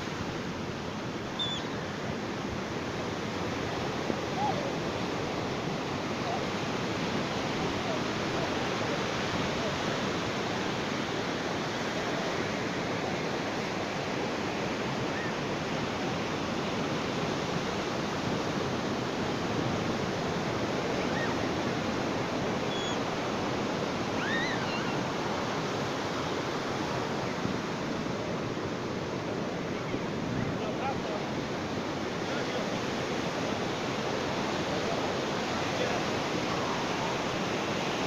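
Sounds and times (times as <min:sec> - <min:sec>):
ocean surf on beach: 0:00.0 - 0:38.0
faint high chirps: 0:01.4 - 0:01.7, 0:22.7 - 0:23.0.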